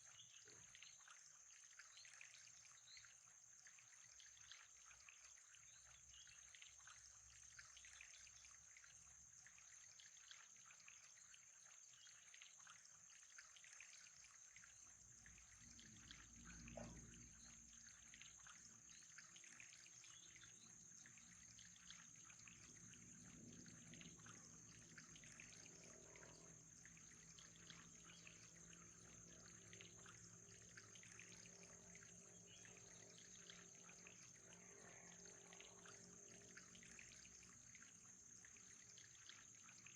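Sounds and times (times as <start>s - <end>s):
faint trickling water: 0.0s - 39.9s.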